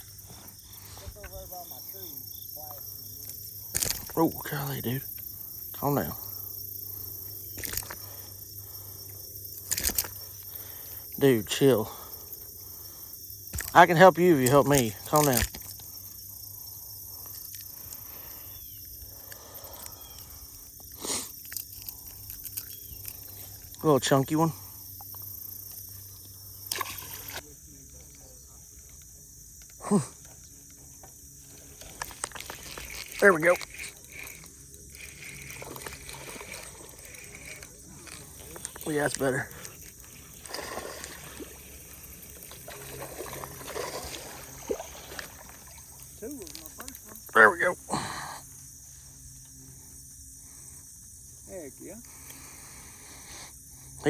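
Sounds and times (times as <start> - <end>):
insects chorus: 0.0 - 54.0
water splashing and trickling: 31.6 - 47.2.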